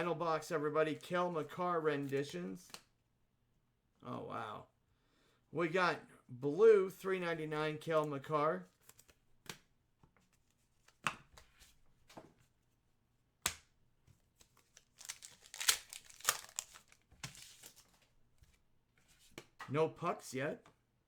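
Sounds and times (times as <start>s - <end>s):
cards snapping: 13.4s - 13.7s, 14.4s - 17.9s
wrappers tearing and crinkling: 14.6s - 18.0s.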